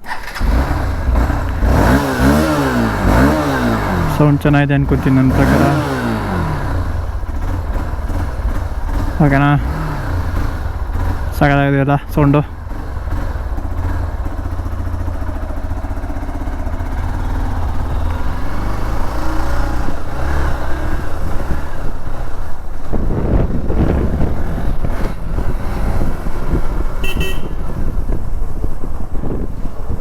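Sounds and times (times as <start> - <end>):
motorcycle engine running: 0.0 - 30.0
horn toot: 27.0 - 28.0.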